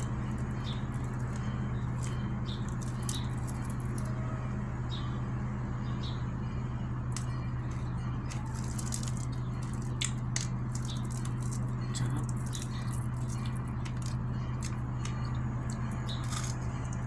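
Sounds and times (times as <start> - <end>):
low electrical hum: 0.0 - 17.0
chewing crackles: 7.1 - 17.0.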